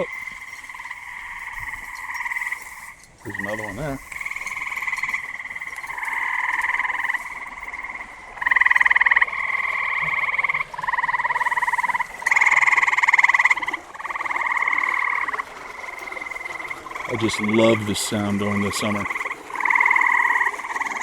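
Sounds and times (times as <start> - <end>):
frogs trilling: 0.0 - 21.0.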